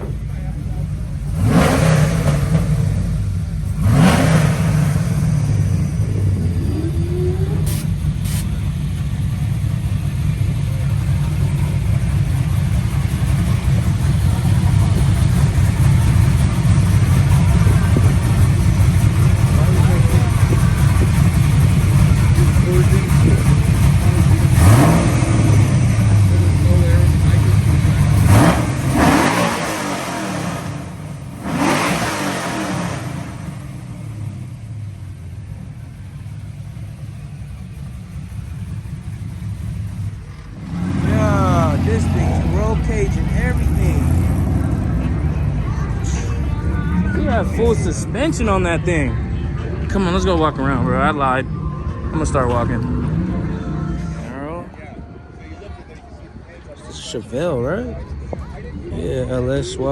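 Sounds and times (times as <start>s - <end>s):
car engine idling loudly: 0.0s - 55.0s.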